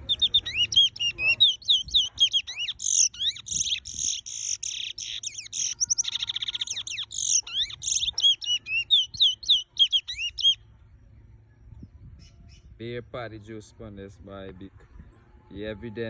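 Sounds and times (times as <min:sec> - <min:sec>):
bullfinch singing whistled notes: 0:00.0 - 0:10.6.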